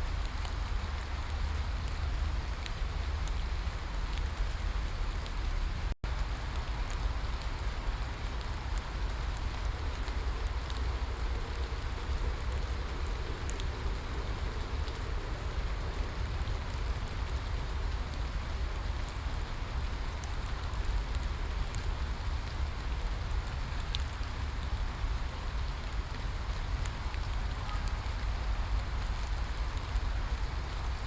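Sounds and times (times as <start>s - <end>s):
rain drops ticking: 0.0s - 31.0s
steady rain hissing: 0.0s - 31.0s.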